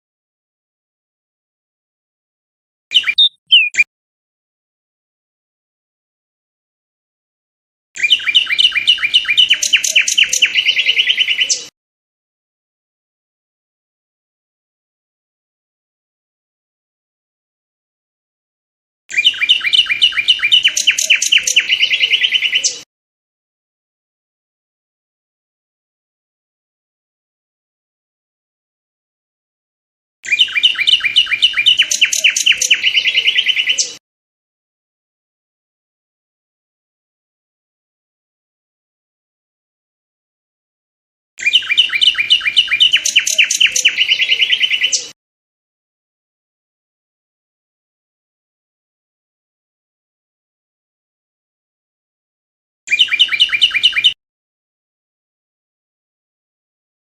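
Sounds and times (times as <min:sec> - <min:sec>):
songbird trilling: 0:02.9 - 0:03.9, 0:08.0 - 0:11.7, 0:19.1 - 0:22.8, 0:30.3 - 0:34.0, 0:41.4 - 0:45.1, 0:52.9 - 0:54.2.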